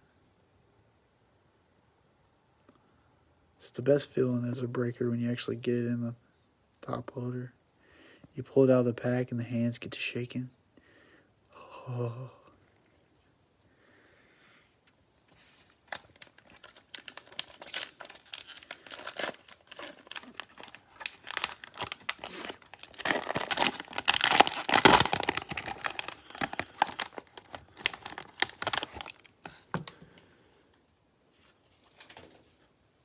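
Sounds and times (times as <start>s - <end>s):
cellophane wrapper crinkling and tearing: 15.4s - 29.9s.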